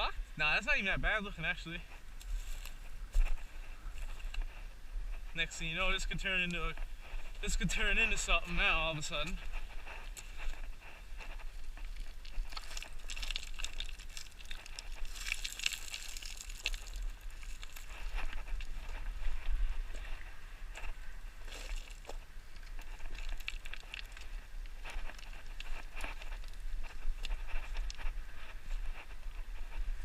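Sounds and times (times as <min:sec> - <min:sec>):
footsteps crunching on gravel: 0:01.8 - 0:30.0
low rumble on microphone: 0:01.8 - 0:30.0.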